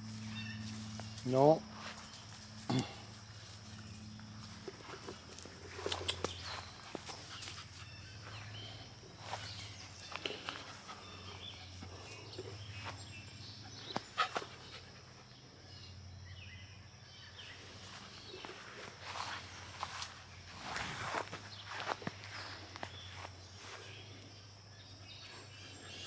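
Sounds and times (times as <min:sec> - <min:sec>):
footsteps on ground: 0:00.0 - 0:13.2, 0:17.4 - 0:24.4
steady low hum: 0:00.0 - 0:26.0.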